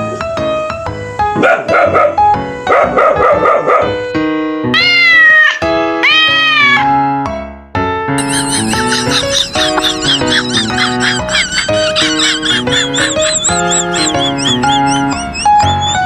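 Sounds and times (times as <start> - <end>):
piano background music: 0.0 - 16.0
cat meowing: 4.7 - 6.9.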